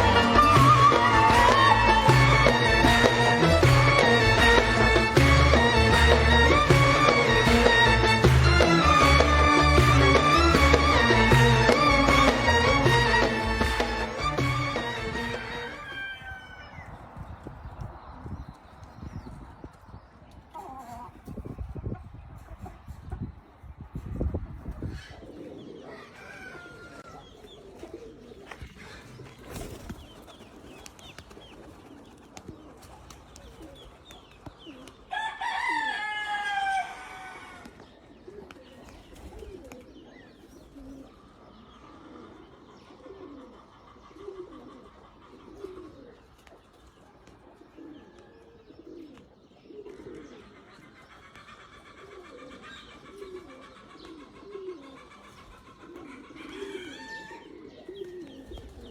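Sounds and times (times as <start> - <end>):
pigeons cooing: 0.0 - 16.9, 24.4 - 58.9
rooster crowing: 15.2 - 16.9, 25.9 - 27.2, 35.1 - 37.7, 56.4 - 57.6.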